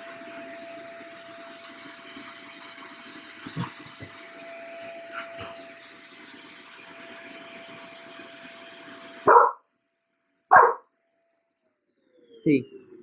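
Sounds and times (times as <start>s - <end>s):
vacuum cleaner running: 0.0s - 9.6s, 10.5s - 10.8s
dog barking loudly: 9.3s - 9.6s, 10.5s - 10.8s.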